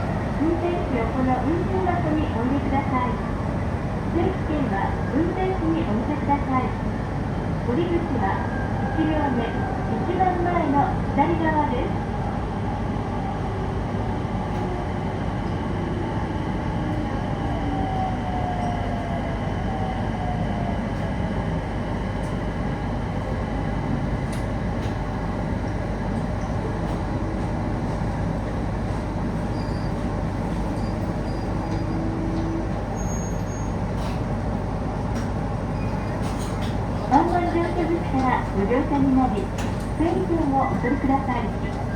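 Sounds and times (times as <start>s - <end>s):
faint train whine: 0.0s - 41.9s
train wheels rumbling: 12.6s - 41.9s.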